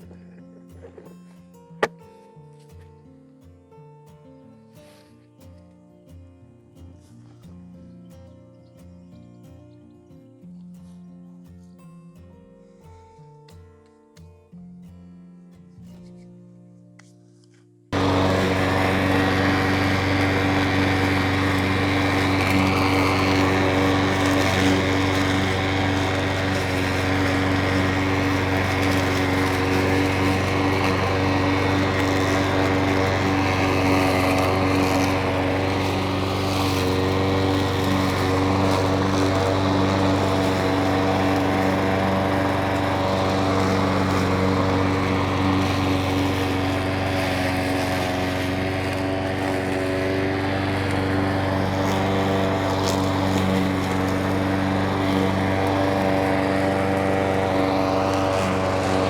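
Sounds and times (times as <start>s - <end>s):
lawn mower engine running: 17.9s - 59.0s.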